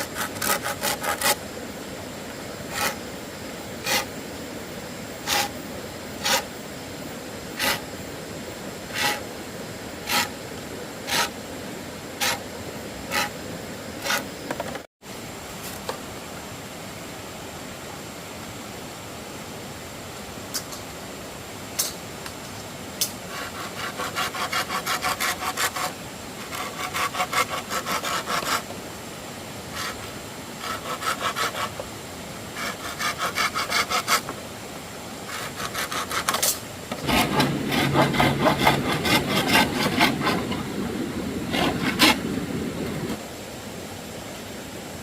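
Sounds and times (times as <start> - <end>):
hand saw cutting bamboo: 0.0 - 1.4, 2.7 - 3.1, 3.8 - 4.2, 5.2 - 5.6, 6.2 - 6.5, 7.6 - 7.9, 8.9 - 9.3, 10.0 - 10.4, 11.0 - 11.4, 12.2 - 12.5, 13.1 - 13.4, 14.0 - 14.4, 23.0 - 28.7, 29.7 - 31.9, 32.6 - 34.3, 35.3 - 40.7, 41.5 - 42.3.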